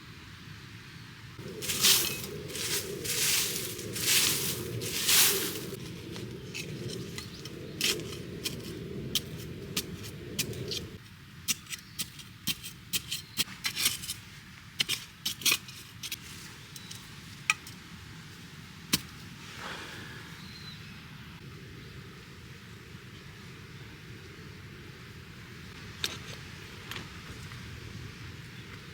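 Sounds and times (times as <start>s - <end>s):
low steady rush: 1.4s - 11.0s.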